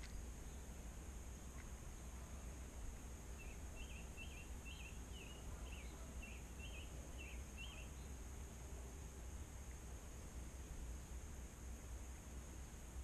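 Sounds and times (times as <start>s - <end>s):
songbird chirping: 0.0s - 11.1s
low steady rumble: 0.0s - 13.0s.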